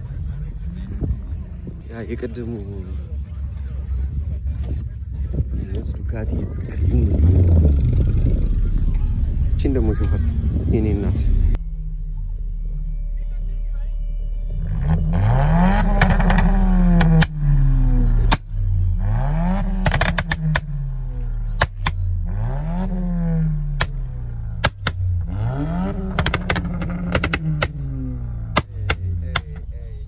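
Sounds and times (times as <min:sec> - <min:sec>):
car engine revving: 0:14.5 - 0:30.0
exhaust pops and crackles: 0:15.5 - 0:18.6, 0:19.4 - 0:29.9.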